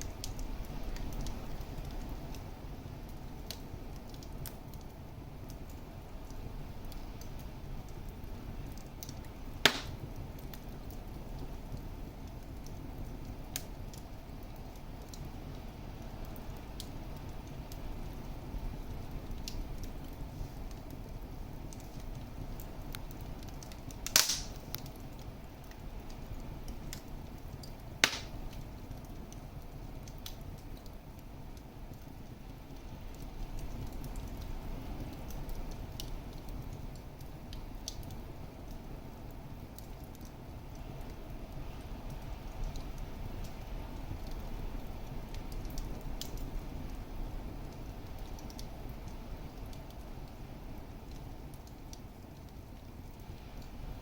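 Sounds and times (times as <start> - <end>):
wood fire crackling: 0.0 - 54.0
sharp loud fire pop: 9.6 - 10.0, 24.1 - 24.6, 28.0 - 28.4.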